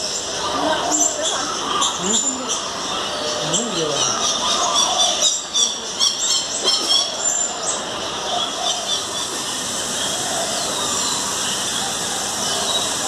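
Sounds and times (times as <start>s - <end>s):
birds chirping and squealing: 0.0s - 13.0s
steady background hiss: 0.0s - 13.0s.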